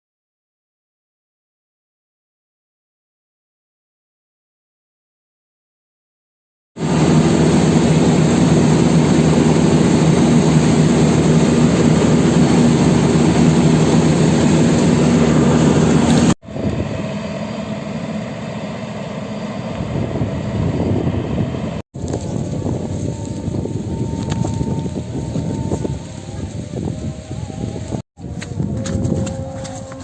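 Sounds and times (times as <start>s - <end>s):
combine harvester engine drone: 6.8s - 30.0s.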